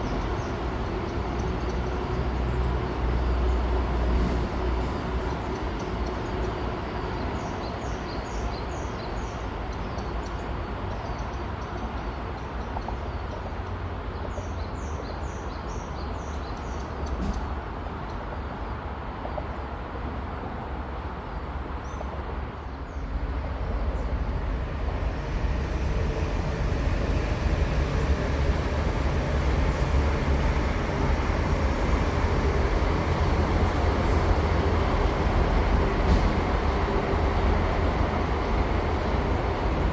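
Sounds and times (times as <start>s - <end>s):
high-speed train rumble: 0.0s - 39.9s.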